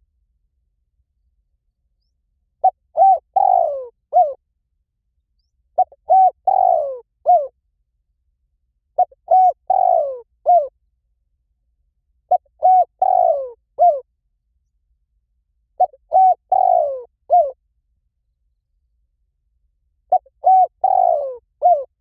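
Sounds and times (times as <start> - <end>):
dove cooing: 2.6 - 4.4, 5.8 - 7.5, 9.0 - 10.7, 12.3 - 14.1, 15.8 - 17.6, 20.1 - 22.0.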